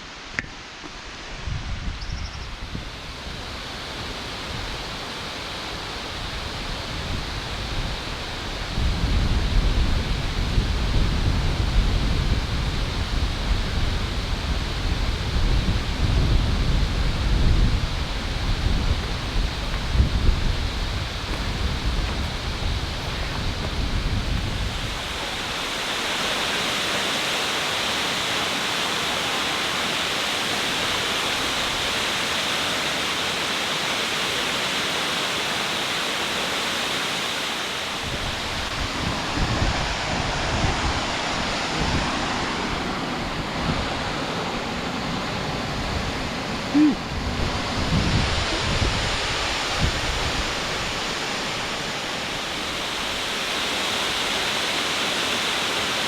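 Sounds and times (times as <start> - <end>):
wind buffeting microphone: 1.3 - 4.9, 6.0 - 26.2, 37.9 - 53.5
waterfall rushing: 9.5 - 56.0.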